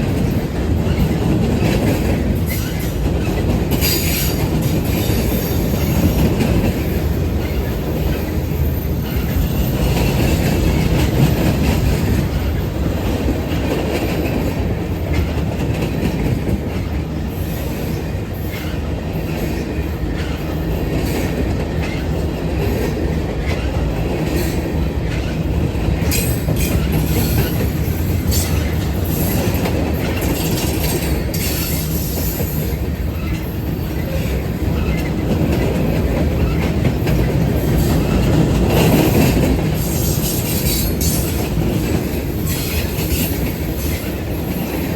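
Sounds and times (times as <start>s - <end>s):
train rumbling on rails: 0.0s - 44.9s
wheel clicks and squeals: 26.0s - 35.7s.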